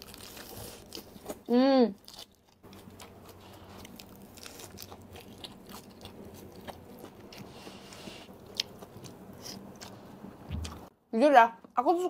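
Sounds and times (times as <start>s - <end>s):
chewing with wet crunches: 0.0s - 10.8s.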